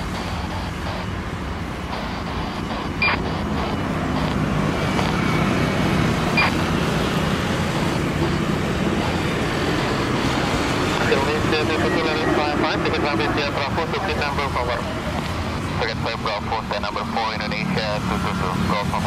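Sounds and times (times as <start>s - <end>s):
radio squelch clicks: 0.0s - 1.2s, 1.9s - 5.4s, 6.2s - 6.7s, 7.6s - 9.2s, 12.9s - 19.0s
aircraft engines rumbling: 0.0s - 19.0s.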